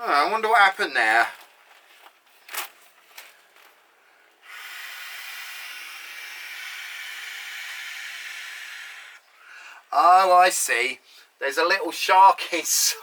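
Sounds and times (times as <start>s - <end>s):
faint handling rustles: 1.2s - 3.9s
air hissing from beach ball: 4.4s - 9.2s.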